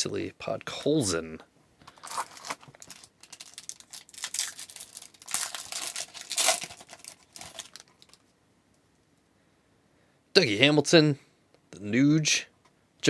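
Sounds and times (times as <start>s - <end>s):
card pack wrapper tearing: 1.9s - 8.2s.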